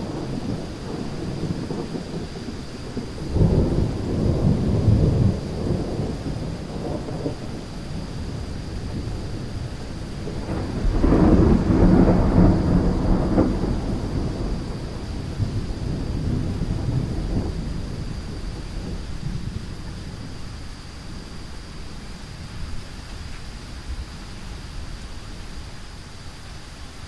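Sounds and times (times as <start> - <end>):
thunder rolling: 0.0 - 25.7
steady rain: 0.0 - 27.0.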